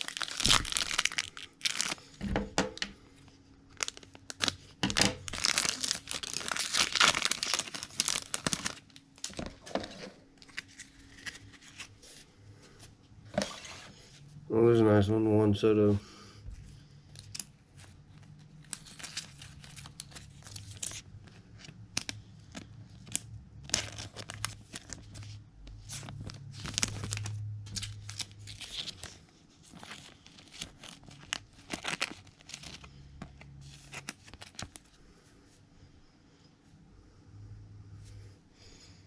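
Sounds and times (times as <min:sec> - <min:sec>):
foil wrappers tearing and crinkling: 0:00.0 - 0:02.2, 0:03.7 - 0:12.0, 0:17.2 - 0:34.9.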